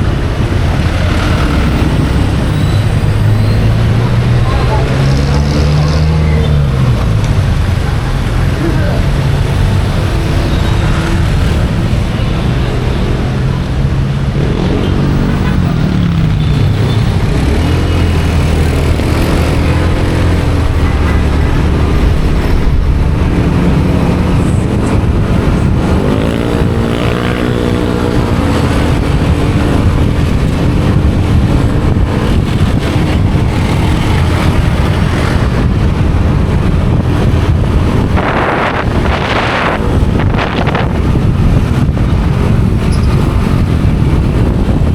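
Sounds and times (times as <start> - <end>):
road and traffic noise: 0.0 - 44.9
motorcycle engine accelerating: 13.3 - 44.9.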